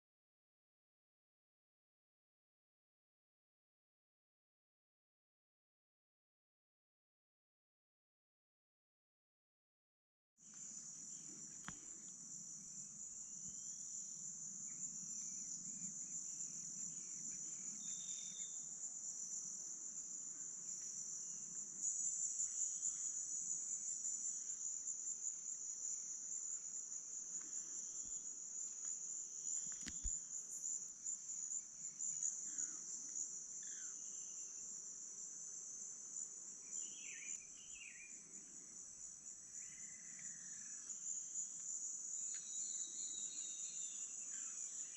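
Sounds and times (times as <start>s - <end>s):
insects buzzing drone: 10.4s - 44.9s
sharp click: 29.7s - 30.2s.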